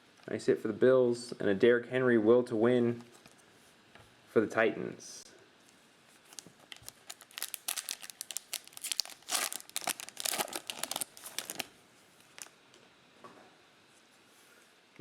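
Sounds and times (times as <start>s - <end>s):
plastic wrapper tearing and crinkling: 6.2s - 12.6s.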